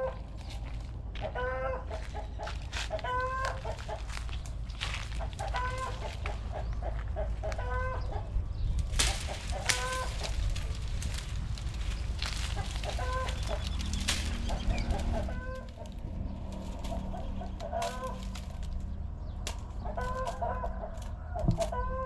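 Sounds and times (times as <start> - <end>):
chickens clucking: 0.0 - 22.0
high-pitched chicken call: 1.3 - 2.2, 3.0 - 3.9, 7.2 - 8.2, 12.8 - 13.7.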